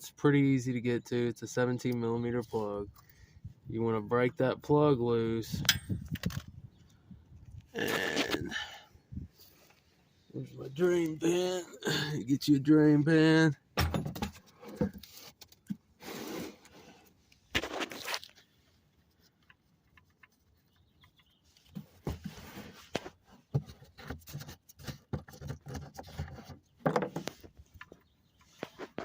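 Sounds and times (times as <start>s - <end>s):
scrapes under a vehicle: 14.3s - 19.4s, 21.4s - 29.0s.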